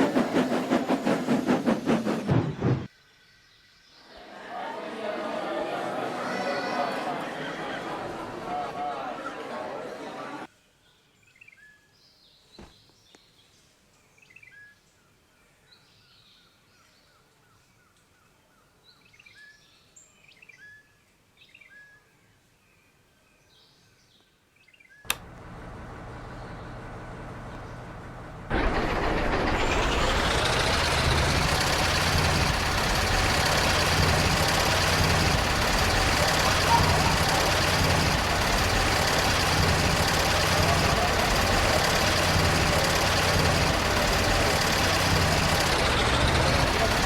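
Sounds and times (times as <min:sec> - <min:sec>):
engine starting and running: 0:00.0 - 0:02.9, 0:25.1 - 0:47.0
engine click: 0:25.1 - 0:25.8, 0:26.8 - 0:47.0
loud engine rising in pitch: 0:25.1 - 0:47.0.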